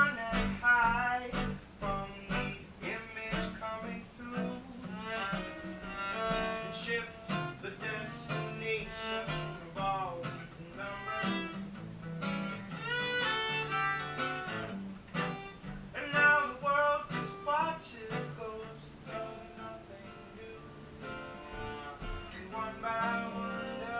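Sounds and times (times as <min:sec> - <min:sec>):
guitar chords: 0:00.0 - 0:23.9
bowed string melody: 0:04.8 - 0:09.6, 0:21.0 - 0:23.9.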